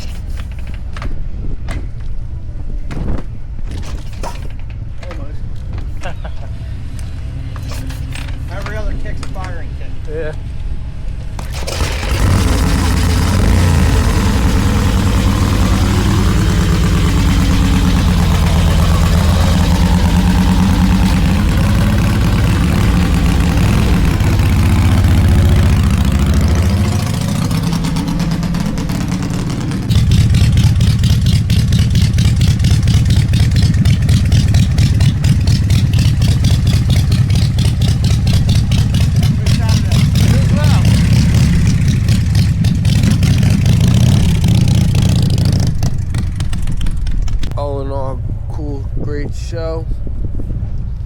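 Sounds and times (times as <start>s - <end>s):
motorcycle engine droning: 4.2s - 49.5s
motorcycle engine revving: 11.2s - 47.7s.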